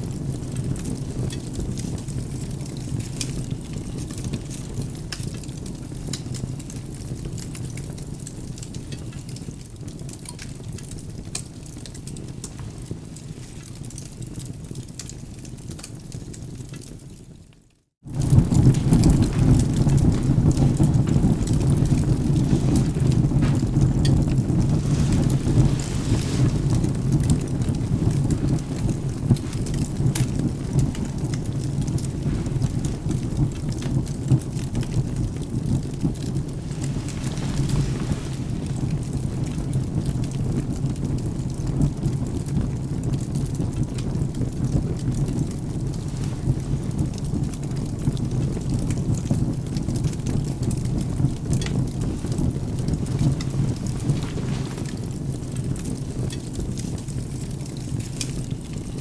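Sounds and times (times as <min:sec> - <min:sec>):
steady rain: 0:00.0 - 0:59.0
wood fire crackling: 0:00.0 - 0:59.0
low rumble of thunder: 0:18.1 - 0:59.0.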